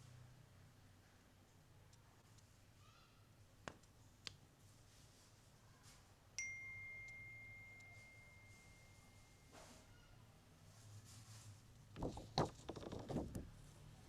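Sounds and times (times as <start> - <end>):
clear ringing ding: 6.4 - 9.6.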